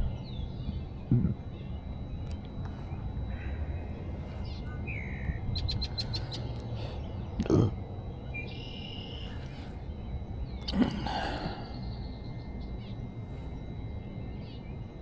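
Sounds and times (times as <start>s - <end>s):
birds chirping: 0.0s - 15.0s
low steady rumble: 0.0s - 15.0s.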